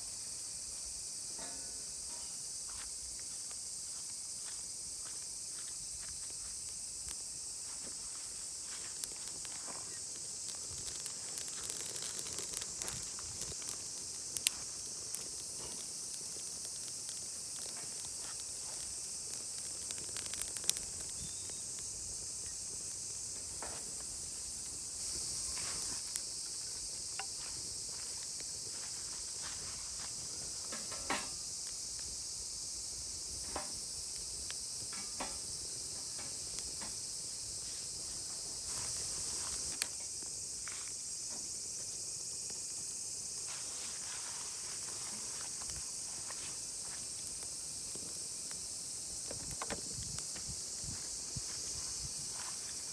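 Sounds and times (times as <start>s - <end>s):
insects chorus: 0.0s - 52.9s.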